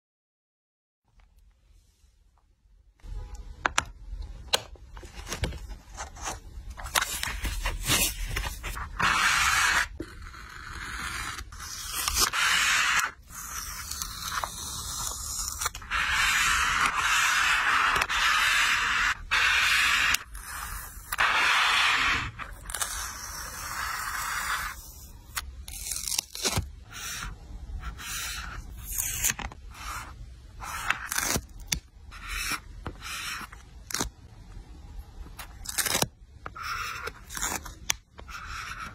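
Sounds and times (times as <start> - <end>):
paper scraping and rustling: 5.0 - 10.0.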